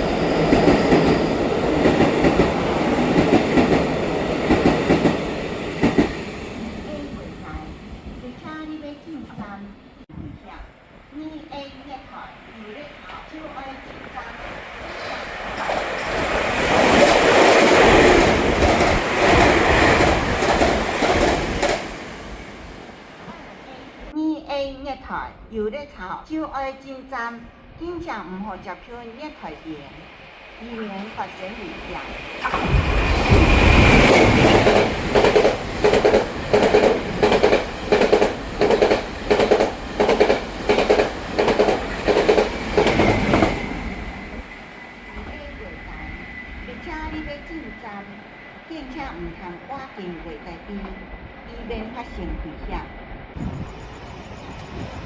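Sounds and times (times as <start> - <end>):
train passing at speed: 0.0 - 10.1, 10.8 - 24.2, 28.8 - 55.0
locomotive rumbling by: 13.0 - 24.1, 30.6 - 49.4
train wheels clattering over rail joints: 15.3 - 22.4, 31.9 - 44.2.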